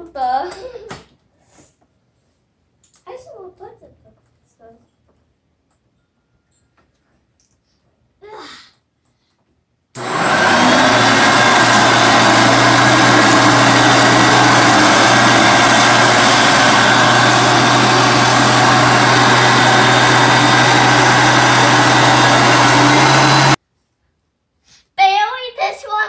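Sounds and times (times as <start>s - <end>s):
vacuum cleaner running: 10.0s - 23.6s.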